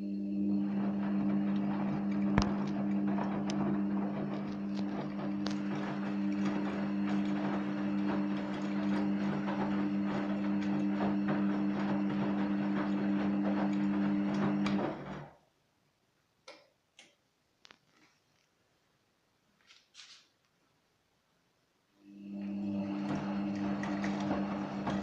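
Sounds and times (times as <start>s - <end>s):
drain pump humming and ticking: 0.0s - 15.2s, 22.1s - 25.0s.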